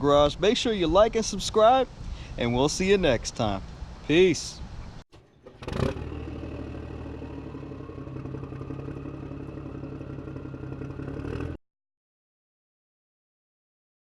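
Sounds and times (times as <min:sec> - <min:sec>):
diesel truck engine running: 0:05.2 - 0:11.6.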